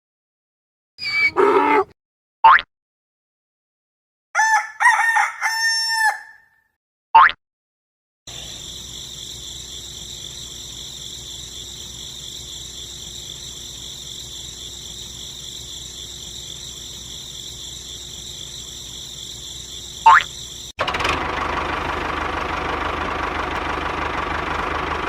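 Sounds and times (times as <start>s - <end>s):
crickets chirping: 8.3s - 20.8s.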